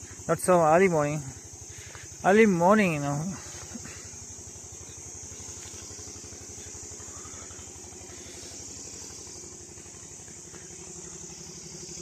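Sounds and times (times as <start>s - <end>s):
high insect chorus: 0.0s - 12.0s
low pulsing engine hum: 0.0s - 12.0s.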